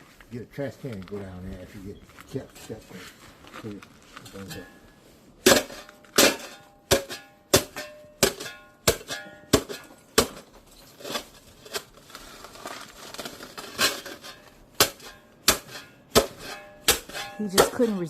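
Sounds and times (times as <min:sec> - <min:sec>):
metal shovel chipping ice: 0:04.3 - 0:18.0.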